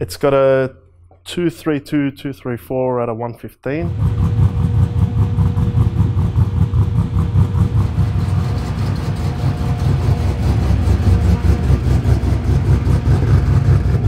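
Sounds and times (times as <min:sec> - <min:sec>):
choppy engine idle: 0:03.9 - 0:14.0.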